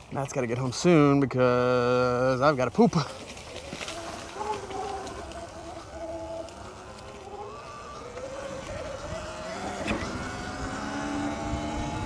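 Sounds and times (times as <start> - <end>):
electric motor whining: 3.9 - 12.0
wind rumble on microphone: 8.0 - 12.0.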